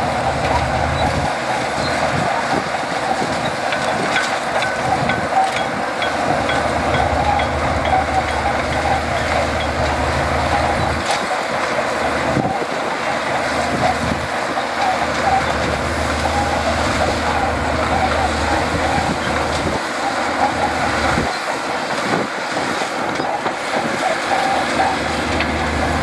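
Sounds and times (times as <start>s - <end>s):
bulldozer diesel engine rumbling: 0.0s - 26.0s
metallic clinks of steel tracks: 3.1s - 12.5s.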